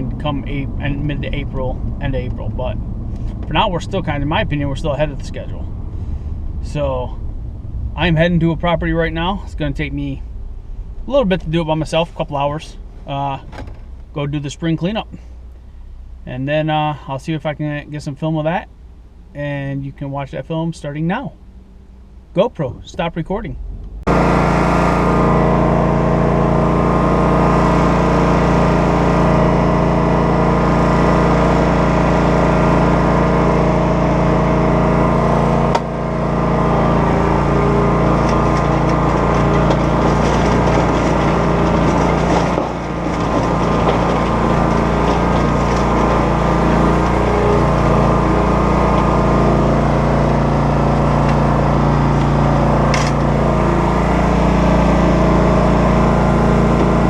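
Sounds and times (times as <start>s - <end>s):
engine running loudly: 0.0s - 9.8s, 23.8s - 57.0s.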